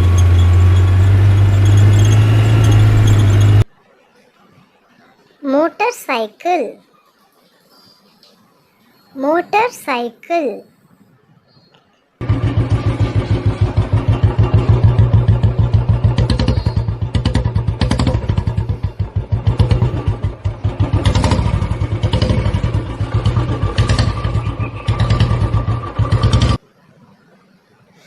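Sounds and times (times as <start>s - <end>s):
motorcycle engine running: 0.0s - 3.6s, 12.2s - 26.6s.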